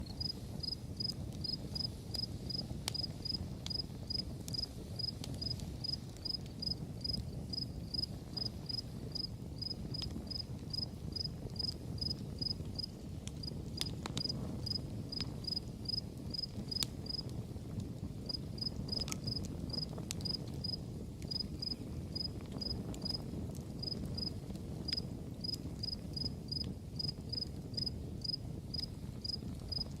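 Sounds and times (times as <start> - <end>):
campfire rumble: 0.0 - 30.0
fire crackling: 0.0 - 30.0
crickets chirping: 0.2 - 1.9, 5.8 - 12.9, 25.8 - 29.8.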